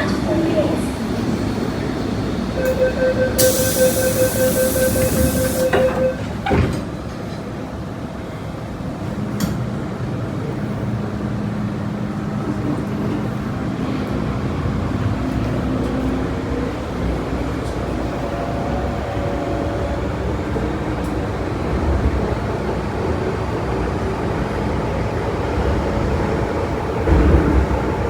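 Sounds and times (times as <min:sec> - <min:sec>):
train doors shutting: 0:00.0 - 0:08.3, 0:23.8 - 0:28.0
train rumble and motor hum: 0:00.0 - 0:28.0
door warning beeps: 0:02.6 - 0:06.6.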